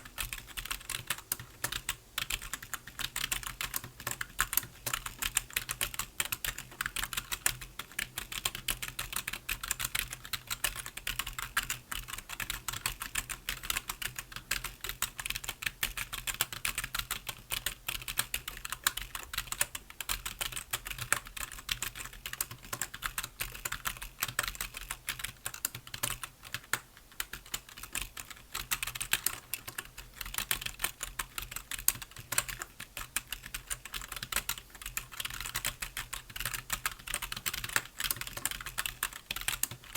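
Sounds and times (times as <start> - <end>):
keyboard typing: 0.1 - 39.9.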